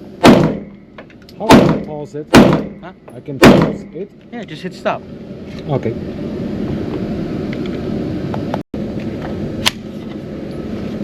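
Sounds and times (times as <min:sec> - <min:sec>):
low background rumble: 0:00.0 - 0:11.0
gunshot crack: 0:00.2 - 0:00.7, 0:01.5 - 0:02.8, 0:03.4 - 0:03.9.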